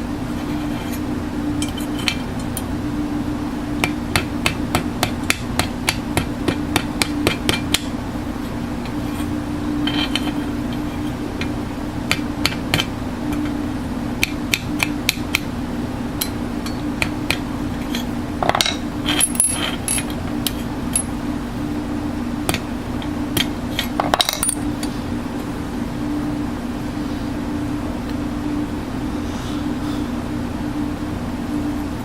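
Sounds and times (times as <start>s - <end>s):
steady low hum: 0.0s - 32.0s
small steel parts clinking: 17.9s - 20.2s.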